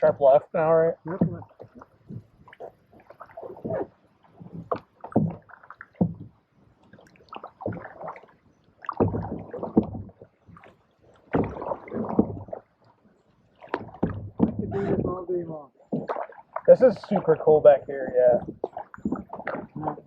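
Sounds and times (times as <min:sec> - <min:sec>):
paddles swishing through water: 0:00.0 - 0:20.0
water gurgling: 0:00.0 - 0:20.0
knocks against hull: 0:01.0 - 0:06.4, 0:08.8 - 0:12.6, 0:13.6 - 0:15.2, 0:18.0 - 0:20.0.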